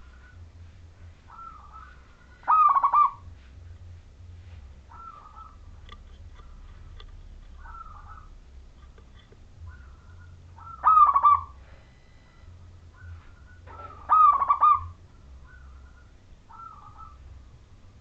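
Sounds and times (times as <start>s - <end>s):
dove cooing song: 0.0s - 3.5s, 4.8s - 8.4s, 9.6s - 12.1s, 12.9s - 17.7s
faint short bird calls: 1.2s - 3.2s, 4.9s - 5.6s, 7.6s - 8.4s, 9.6s - 17.3s.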